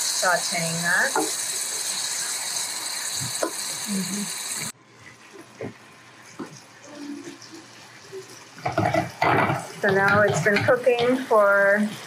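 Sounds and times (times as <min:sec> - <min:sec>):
tomatoes sizzling in hot oil: 0:00.0 - 0:12.0
wooden spoon knocking: 0:08.6 - 0:11.3.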